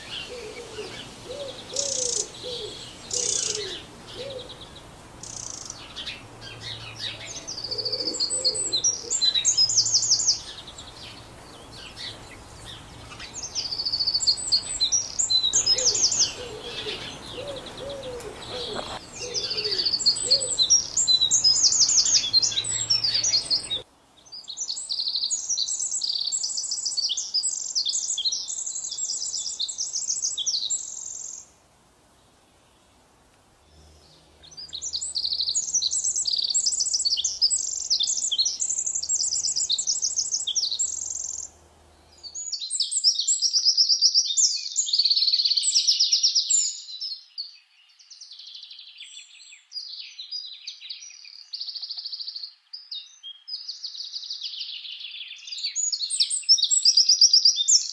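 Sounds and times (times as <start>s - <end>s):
birds trilling: 0.0s - 23.8s, 33.6s - 42.6s
lower bird calls: 0.0s - 31.6s, 33.6s - 43.8s
background noise: 0.0s - 57.9s.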